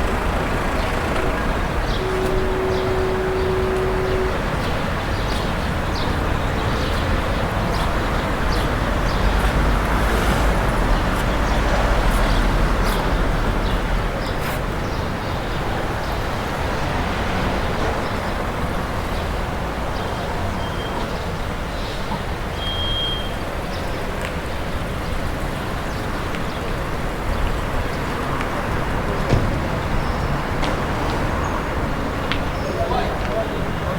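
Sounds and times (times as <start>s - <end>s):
motor vehicle rumbling past: 0.0s - 19.5s
steady traffic haze: 0.0s - 33.9s.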